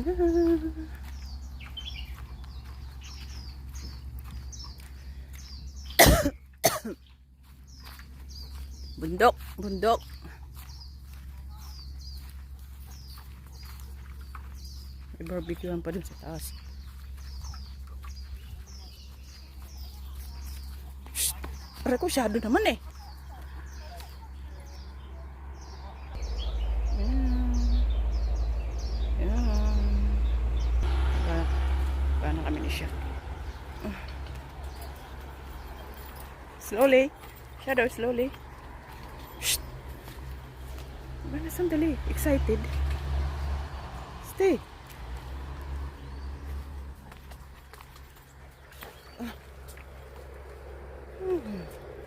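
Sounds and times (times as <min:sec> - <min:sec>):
bird chirping: 0:00.0 - 0:52.0
person coughing: 0:06.0 - 0:07.0.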